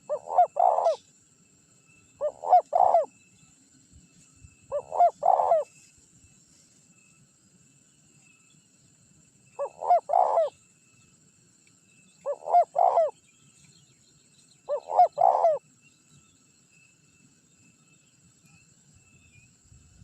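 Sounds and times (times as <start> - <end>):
spotted dove cooing: 0.0 - 1.0, 2.2 - 3.1, 4.7 - 5.7, 9.6 - 10.5, 12.2 - 13.2, 14.7 - 15.6.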